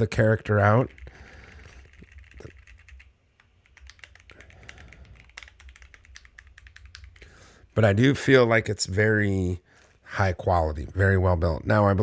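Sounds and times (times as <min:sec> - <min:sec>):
mechanical keyboard typing: 0:00.2 - 0:07.2.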